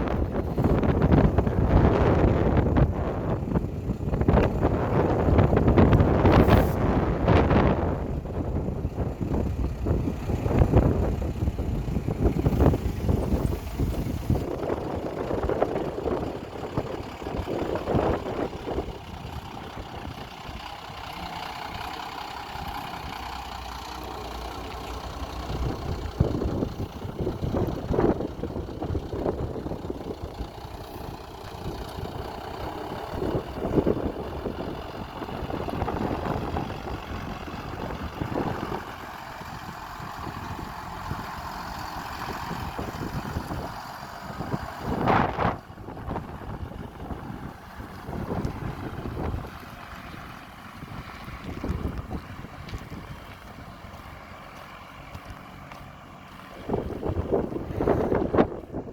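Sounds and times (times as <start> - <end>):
bus engine idling: 0.0 - 58.9.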